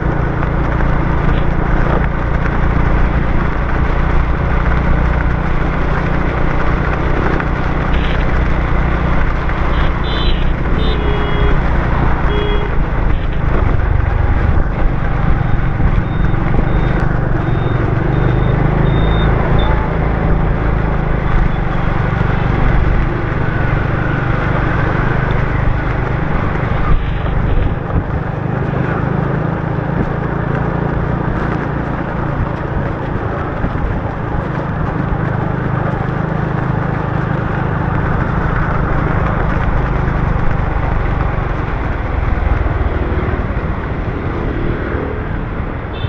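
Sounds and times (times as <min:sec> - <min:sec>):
motorbike engine and road noise: 0:00.0 - 0:46.0
short high beeps: 0:09.8 - 0:11.6, 0:16.0 - 0:19.8.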